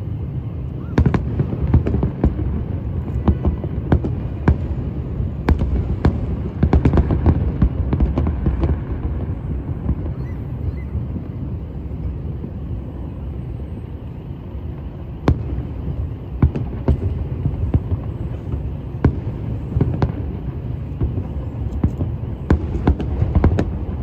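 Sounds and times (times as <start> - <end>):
low city rumble: 0.0 - 24.0
fireworks popping: 1.0 - 11.3, 15.1 - 24.0.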